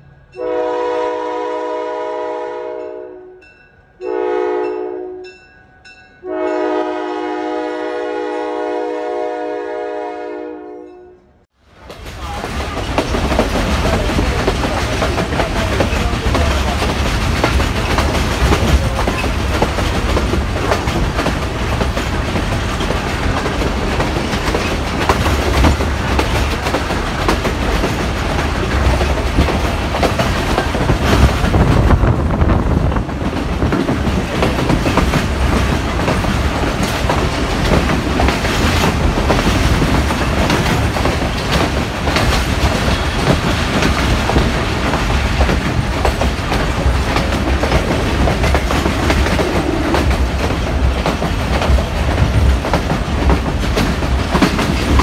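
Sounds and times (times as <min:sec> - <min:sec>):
train rumble from inside coach: 0:11.6 - 0:55.0
wheels clattering over rails: 0:11.8 - 0:55.0.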